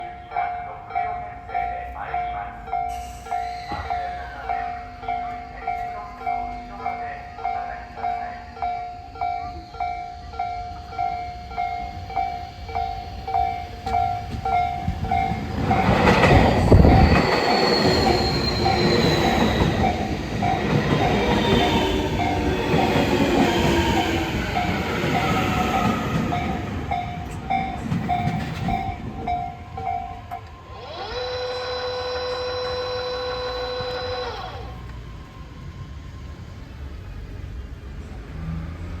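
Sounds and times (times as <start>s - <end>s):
level-crossing warning bell: 0.0s - 36.4s
electric train motor whine: 30.1s - 36.8s
train horn: 30.7s - 34.9s.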